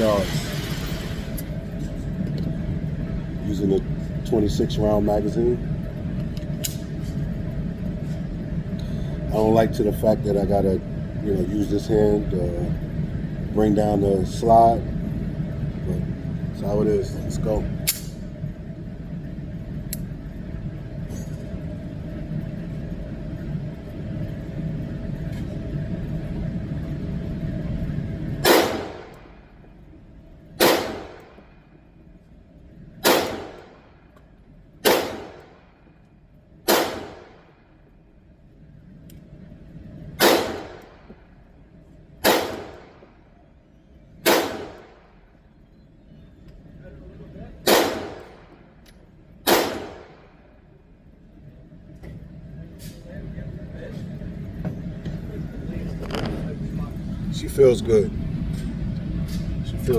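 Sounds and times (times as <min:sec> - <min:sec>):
faint hum: 0:00.0 - 0:59.9
low background rumble: 0:00.0 - 0:59.9
pistol shots with echo: 0:28.4 - 0:29.2, 0:30.6 - 0:31.4, 0:33.0 - 0:33.8, 0:34.8 - 0:35.6, 0:36.7 - 0:37.4, 0:40.2 - 0:41.0, 0:42.2 - 0:43.0, 0:44.2 - 0:45.0, 0:47.6 - 0:48.5, 0:49.5 - 0:50.2.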